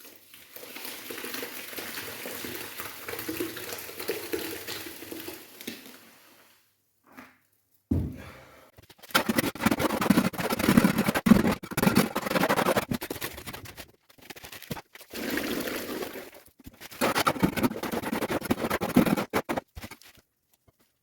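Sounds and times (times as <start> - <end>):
shovel scraping wet concrete: 9.2 - 13.8.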